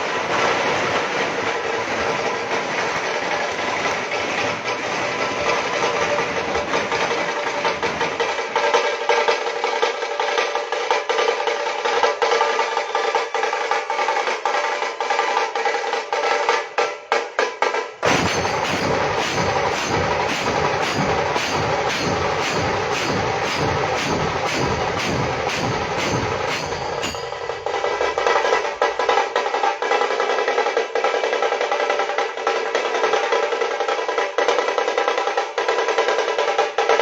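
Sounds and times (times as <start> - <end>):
steady pitched drone: 18.0 - 28.8
fast dense drumming: 18.0 - 32.9.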